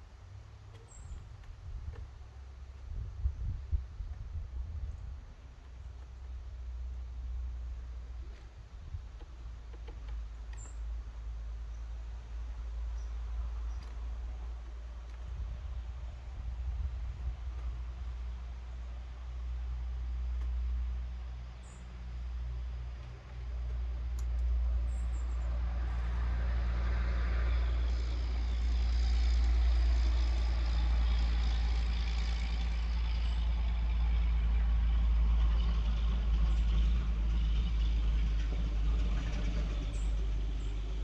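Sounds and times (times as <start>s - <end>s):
vehicle engine low rumble: 0.0s - 41.0s.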